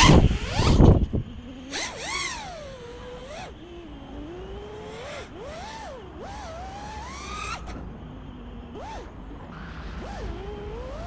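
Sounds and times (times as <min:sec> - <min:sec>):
wind noise rushing: 0:00.0 - 0:01.4
drone motors whining: 0:00.0 - 0:11.0.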